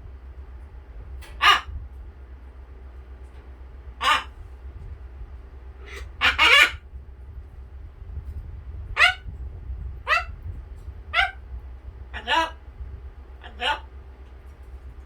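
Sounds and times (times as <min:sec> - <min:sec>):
parrot imitating dog bark: 0:01.4 - 0:01.7, 0:04.0 - 0:04.3, 0:05.8 - 0:06.8, 0:09.0 - 0:09.2, 0:10.1 - 0:10.4, 0:11.1 - 0:11.4, 0:12.2 - 0:12.6, 0:13.4 - 0:13.9.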